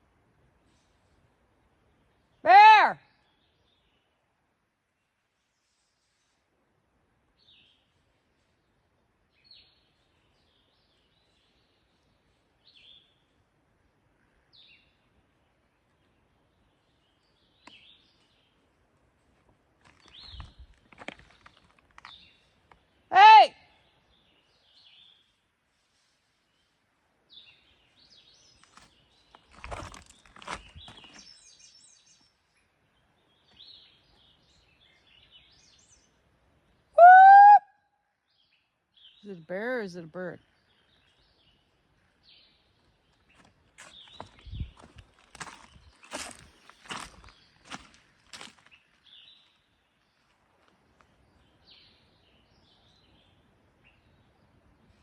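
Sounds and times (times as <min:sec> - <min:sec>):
rustling in dry leaves: 0:24.8 - 0:31.6, 0:42.9 - 0:51.1
faint high bird calls: 0:36.9 - 0:38.0.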